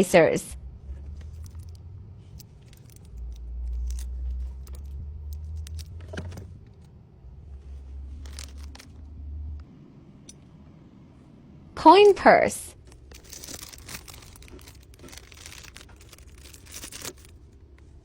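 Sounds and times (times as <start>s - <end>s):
steady low rumble: 0.0s - 18.0s
small items clicking and rustling: 0.8s - 9.5s, 12.8s - 18.0s.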